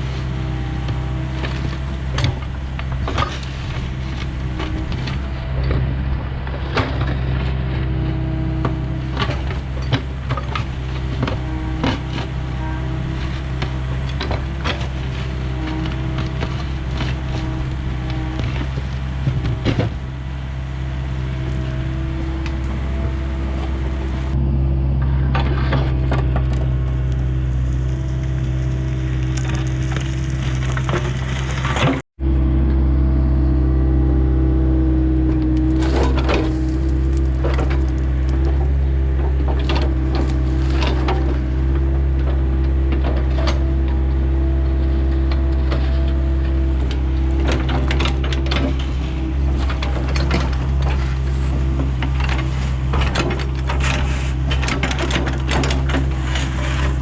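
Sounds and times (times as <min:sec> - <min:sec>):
diesel excavator engine running: 0:00.0 - 0:57.0
wood and roots cracking: 0:08.7 - 0:24.0, 0:26.4 - 0:32.0, 0:35.5 - 0:57.0.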